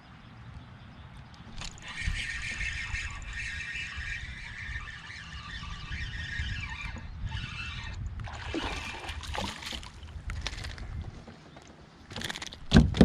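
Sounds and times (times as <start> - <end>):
water trickling and splashing: 1.6 - 11.1.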